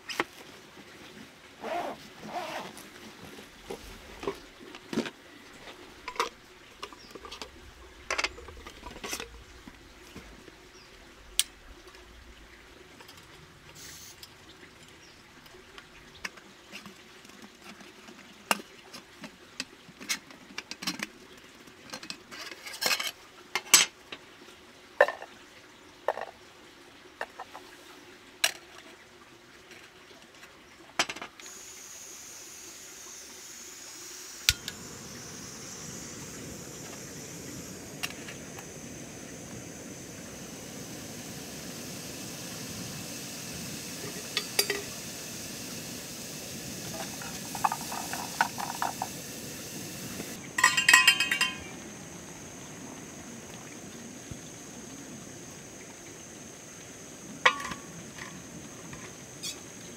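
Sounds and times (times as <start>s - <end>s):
cookware clinking and clattering: 47.0s - 49.2s, 50.6s - 51.8s, 57.5s - 57.8s.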